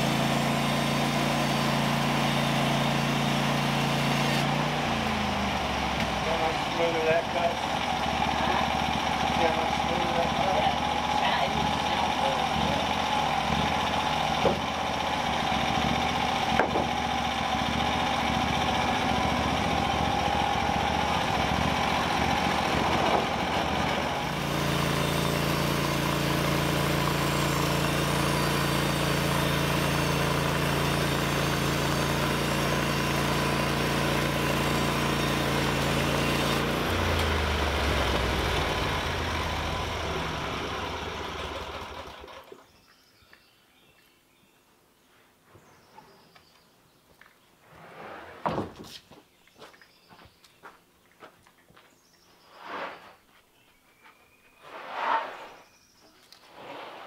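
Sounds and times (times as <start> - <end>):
small gasoline saw engine: 0.0 - 42.7.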